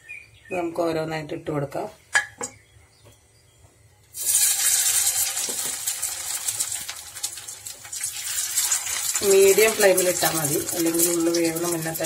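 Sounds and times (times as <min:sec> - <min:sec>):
hot oil sizzling in frying pan: 0:04.1 - 0:12.0.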